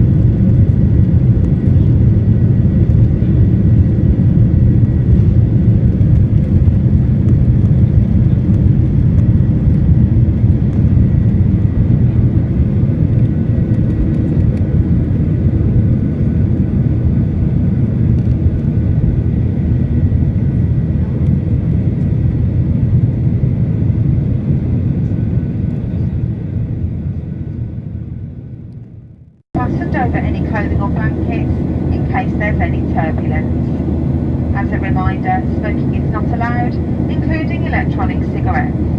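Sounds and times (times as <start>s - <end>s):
airplane cabin engine roar: 0.0s - 38.9s
faint steady whine: 29.6s - 38.9s.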